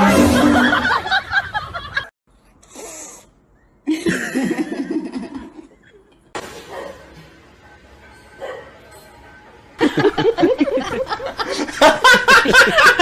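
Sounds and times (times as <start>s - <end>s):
people laughing: 0.3s - 2.1s, 3.9s - 6.3s, 9.8s - 13.0s.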